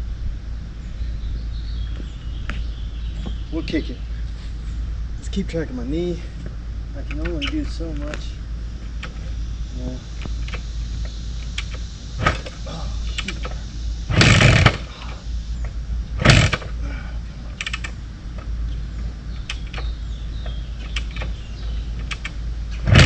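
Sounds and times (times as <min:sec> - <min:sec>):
motorcycle engine firing briefly: 0:12.2 - 0:12.6, 0:14.1 - 0:14.9, 0:16.2 - 0:16.7.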